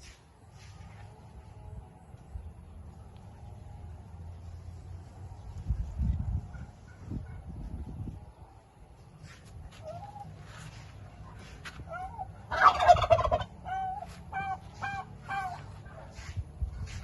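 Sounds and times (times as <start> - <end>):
turkey gobbling: 11.9 - 15.8.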